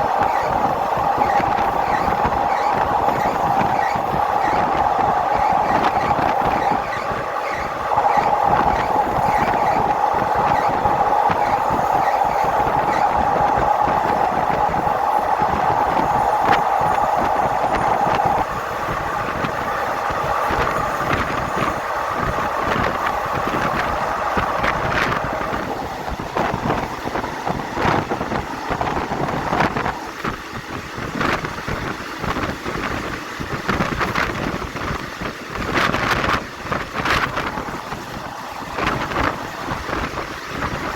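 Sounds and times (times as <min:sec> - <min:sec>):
steady high tone: 0:00.0 - 0:30.2
passenger train rumbling on track: 0:00.0 - 0:40.9.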